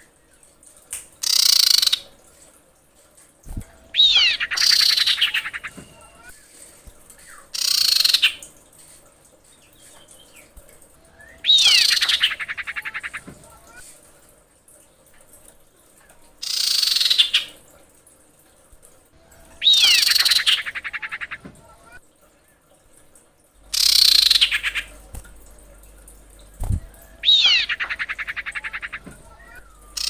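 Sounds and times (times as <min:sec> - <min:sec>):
bird whistle and rattling trill: 0:01.2 - 0:02.0, 0:03.9 - 0:06.5, 0:07.2 - 0:08.5, 0:09.6 - 0:13.2, 0:16.4 - 0:17.6, 0:19.4 - 0:21.4, 0:23.7 - 0:25.0, 0:26.5 - 0:30.0
bird harsh rasping calls: 0:03.8 - 0:06.3, 0:07.6 - 0:08.5, 0:11.1 - 0:13.8, 0:19.4 - 0:22.0, 0:23.7 - 0:25.1, 0:26.8 - 0:30.0.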